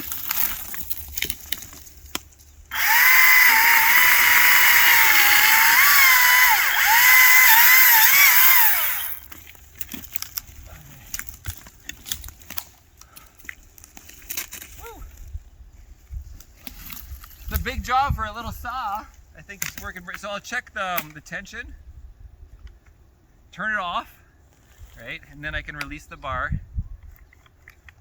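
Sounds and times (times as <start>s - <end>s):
wood and brush cracking: 0.0s - 15.3s, 16.2s - 17.7s
battery chainsaw whining: 2.7s - 9.3s.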